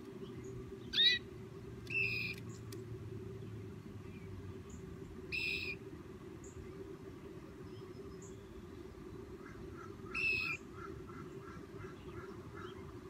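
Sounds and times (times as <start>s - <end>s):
low background hum: 0.0s - 13.0s
bird calls: 0.1s - 2.8s, 4.0s - 5.8s, 7.6s - 13.0s.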